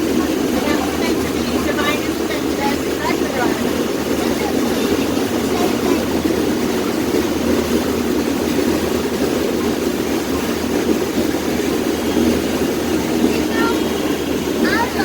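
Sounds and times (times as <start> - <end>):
boat engine drone: 0.0 - 15.0.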